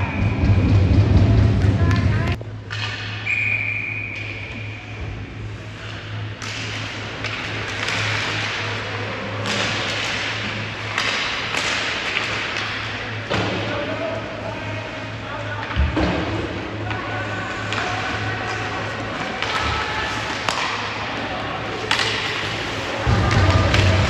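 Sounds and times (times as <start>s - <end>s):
steady low hum: 0.0s - 2.7s, 21.7s - 24.0s
sticks and puck clacking: 5.8s - 13.5s, 17.7s - 24.0s
skates scraping ice: 18.6s - 24.0s.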